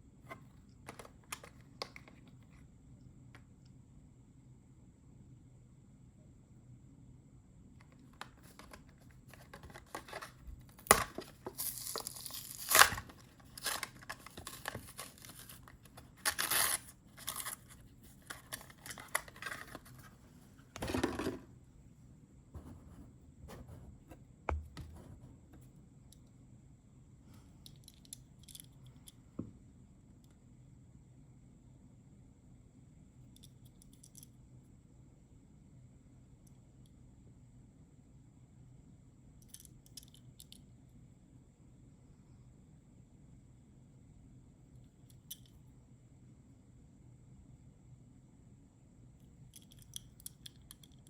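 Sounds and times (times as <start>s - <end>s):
packaging ripping and crinkling: 9.4s - 20.0s.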